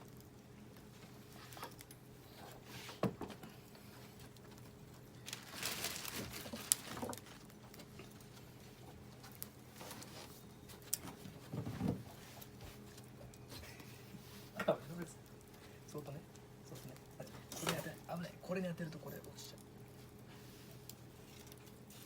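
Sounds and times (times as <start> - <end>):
campfire crackling and popping: 0.0 - 2.2, 14.6 - 22.0.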